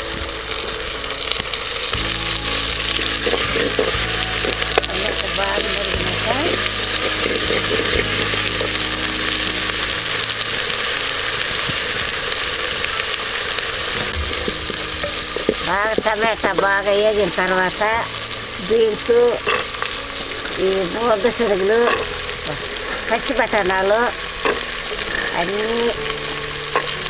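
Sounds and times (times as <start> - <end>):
food sizzling in hot oil: 0.0 - 27.0.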